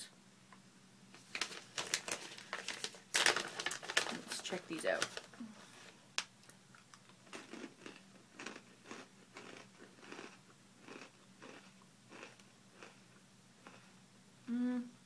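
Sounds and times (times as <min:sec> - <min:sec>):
person chewing crunchy snacks: 0:06.4 - 0:14.0.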